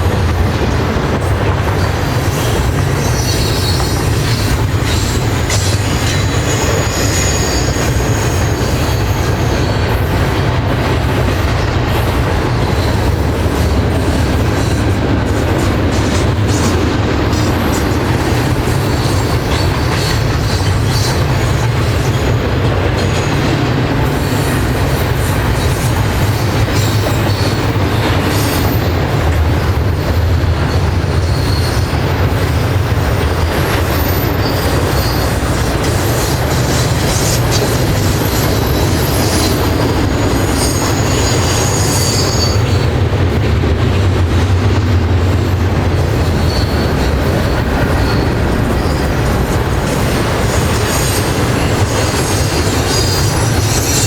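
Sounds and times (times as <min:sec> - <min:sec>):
train wheels rumbling on rails: 0:00.0 - 0:54.0
high-pitched wheel squeal: 0:02.4 - 0:09.8, 0:30.7 - 0:32.3, 0:33.9 - 0:42.9, 0:46.2 - 0:49.6, 0:50.4 - 0:54.0.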